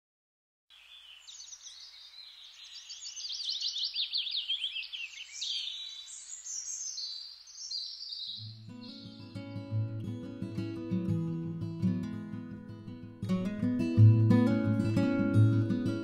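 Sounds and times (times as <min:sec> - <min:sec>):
songbirds chirping and trilling: 0:00.7 - 0:09.8
acoustic guitar music: 0:08.4 - 0:16.0.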